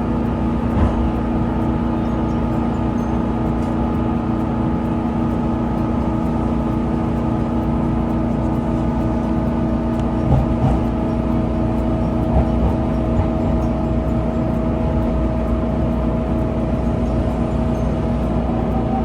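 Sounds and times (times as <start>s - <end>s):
electric train rumble: 0.0s - 19.0s
train motor tones: 9.9s - 19.0s.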